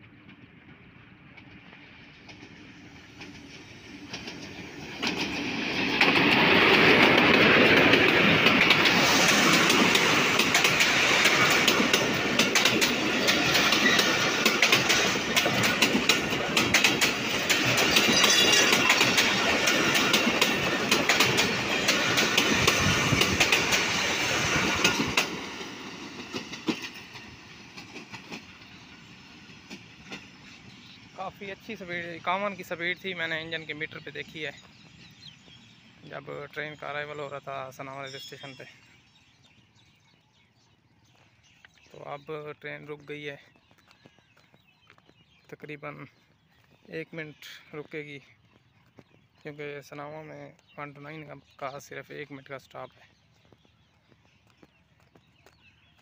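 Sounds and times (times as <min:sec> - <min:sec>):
diesel locomotive passing: 0:00.0 - 0:39.1
wheels clattering over rail joints: 0:01.4 - 0:28.5.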